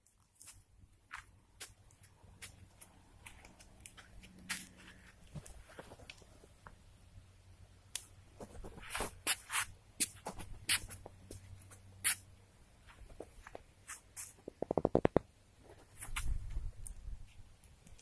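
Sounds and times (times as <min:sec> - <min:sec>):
small clicks and knocks of handling: 0:17.6 - 0:18.0.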